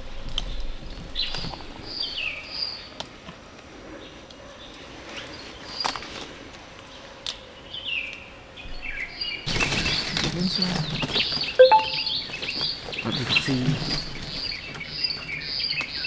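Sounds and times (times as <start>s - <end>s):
birds chirping: 8.8s - 16.0s.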